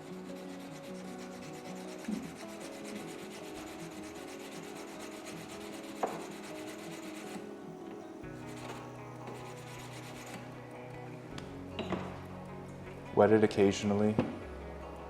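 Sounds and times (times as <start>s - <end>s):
knife scraping on whetstone: 0.0s - 7.5s, 8.3s - 10.5s.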